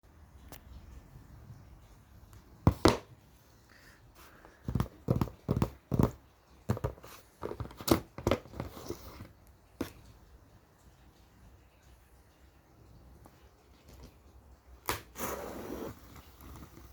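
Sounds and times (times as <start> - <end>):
knocks and taps on cardboard box: 2.7 - 3.1, 4.7 - 8.6.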